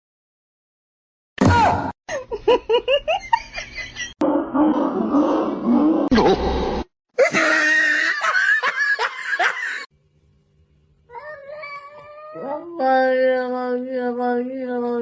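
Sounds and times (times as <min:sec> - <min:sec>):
cat yowling: 0:11.2 - 0:12.4.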